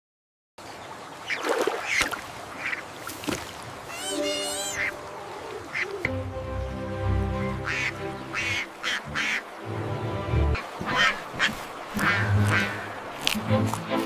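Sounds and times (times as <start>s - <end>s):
ducks quacking: 1.3s - 2.9s, 3.8s - 6.2s, 7.3s - 9.8s, 10.5s - 13.8s.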